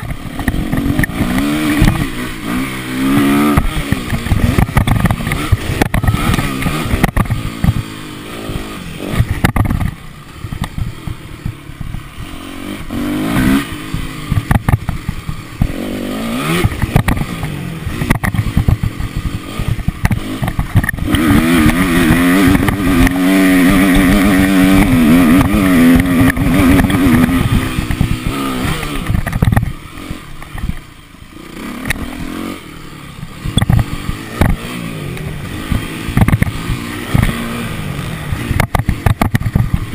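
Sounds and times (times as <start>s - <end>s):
motorcycle engine revving: 0.0s - 39.9s
knocks and rattles: 16.6s - 29.8s.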